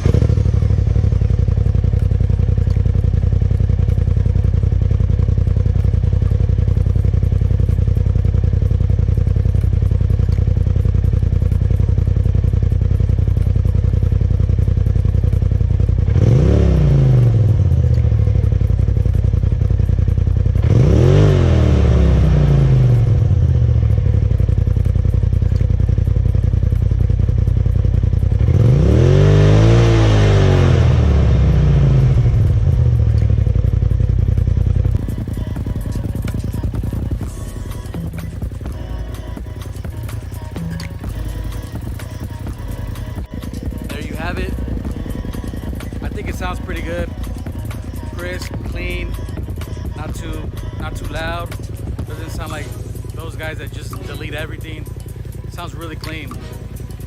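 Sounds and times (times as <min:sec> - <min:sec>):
engine idling: 0:00.0 - 0:57.0
engine throttle blips: 0:00.0 - 0:57.0.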